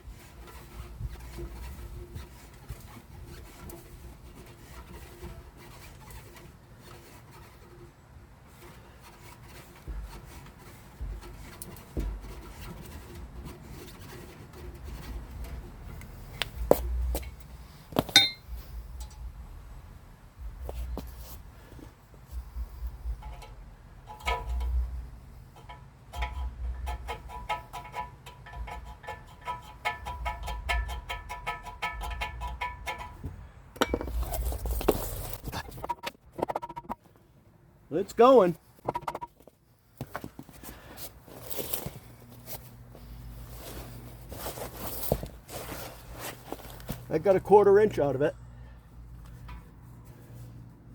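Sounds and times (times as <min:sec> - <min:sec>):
harsh rasping of metal: 0:00.0 - 0:18.9, 0:22.3 - 0:37.0
low handling noise: 0:08.5 - 0:37.2
metal tools clinking: 0:18.0 - 0:19.2.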